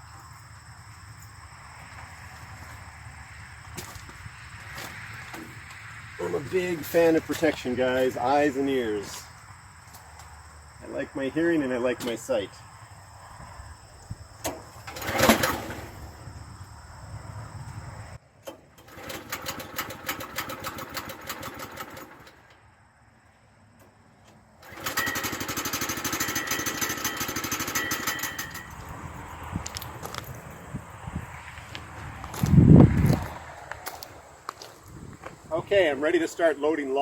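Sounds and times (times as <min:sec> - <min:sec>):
small gasoline engine running: 0:14.9 - 0:16.0, 0:18.8 - 0:22.4, 0:24.6 - 0:28.7.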